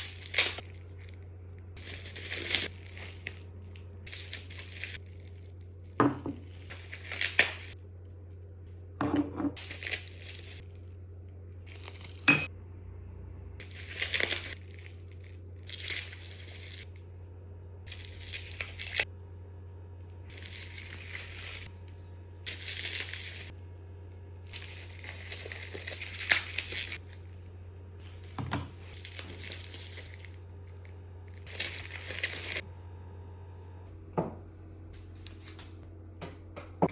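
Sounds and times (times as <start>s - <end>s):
wrapping crinkling: 0.0s - 8.6s, 9.6s - 12.3s, 13.6s - 17.0s, 17.9s - 19.1s, 20.3s - 32.6s.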